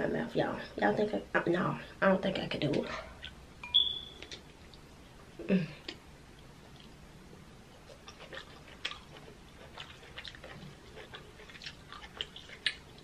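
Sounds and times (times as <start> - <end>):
person chewing with wet mouth smacks: 7.8 - 13.0.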